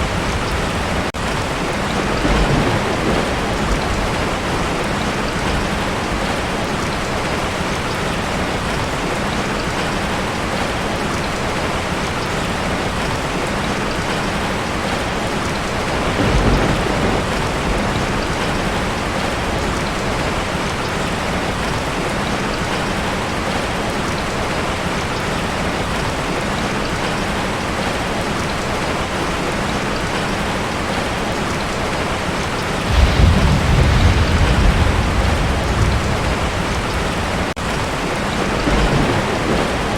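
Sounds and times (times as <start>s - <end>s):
thunder rumbling: 0.0s - 6.6s, 15.8s - 20.6s, 32.8s - 39.9s
heavy rain on a metal roof: 0.0s - 39.9s.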